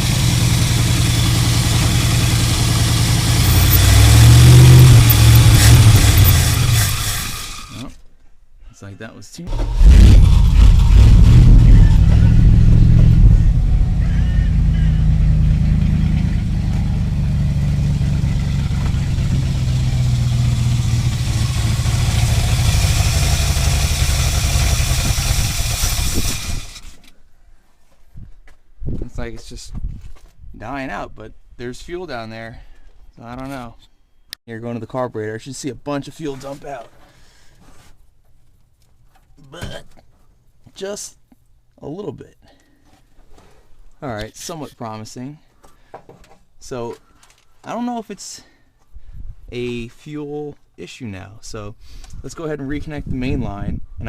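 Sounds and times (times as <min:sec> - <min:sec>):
pickup truck engine idling: 0:09.6 - 0:25.8.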